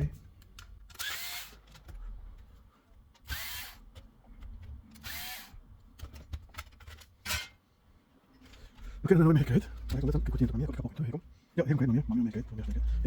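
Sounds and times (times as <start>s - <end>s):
electric screwdriver whining: 3.3s - 3.8s.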